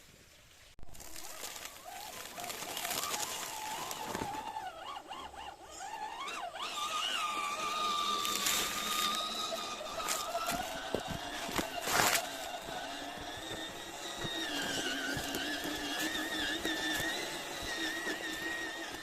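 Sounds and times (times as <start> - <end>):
electric motor whining: 1.1 - 19.0.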